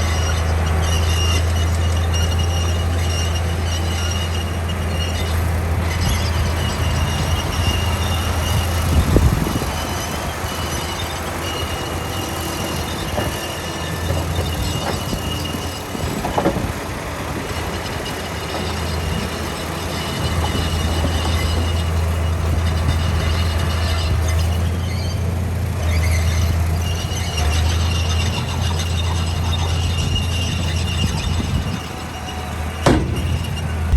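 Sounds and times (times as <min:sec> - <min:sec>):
faint high squeal: 0:00.0 - 0:16.0, 0:17.8 - 0:33.9
heavy diesel machinery running: 0:00.0 - 0:33.9
metal clanks: 0:32.8 - 0:33.9.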